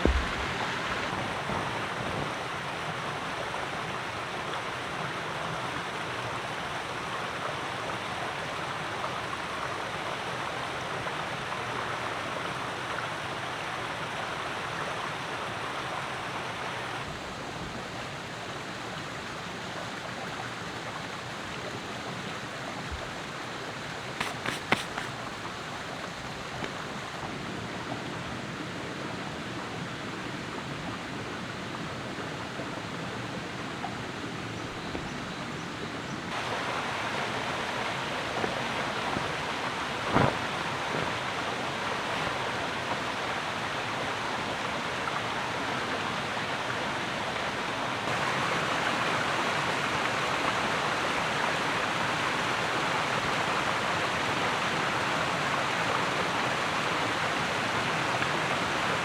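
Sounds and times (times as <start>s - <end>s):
sharp knock: 0.0s - 0.9s.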